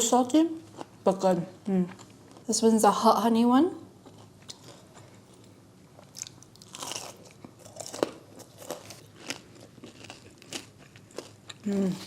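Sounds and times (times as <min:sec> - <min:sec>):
crunchy chewing: 0:04.0 - 0:12.0.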